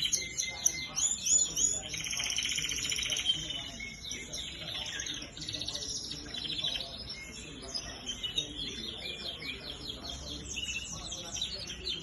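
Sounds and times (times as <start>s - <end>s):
canaries singing: 0.0s - 12.0s.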